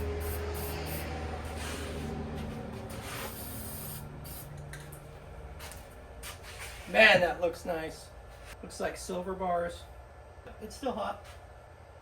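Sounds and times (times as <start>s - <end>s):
spray paint can hissing: 0.0s - 1.8s, 2.9s - 4.6s.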